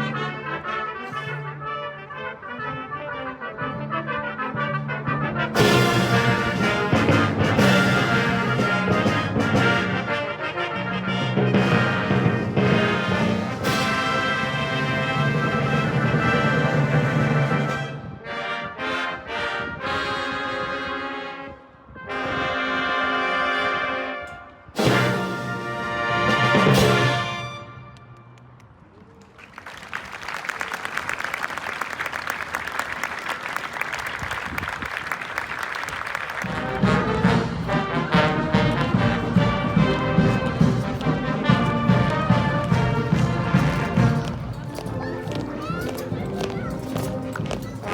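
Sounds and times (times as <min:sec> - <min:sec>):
brass fanfare of trumpets and trombones: 0:00.0 - 0:28.3, 0:36.2 - 0:47.9
audience applause: 0:28.9 - 0:37.1.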